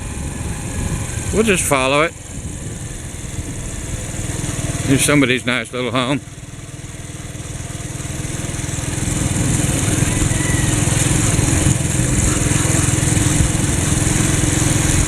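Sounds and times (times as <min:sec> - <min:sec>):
petrol hedge trimmer running: 0:07.2 - 0:15.0.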